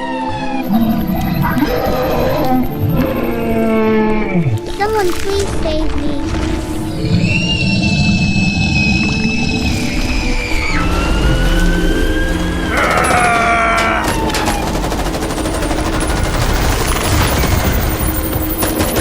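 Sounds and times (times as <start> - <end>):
rapid crackling like gunfire: 14.0 - 19.0.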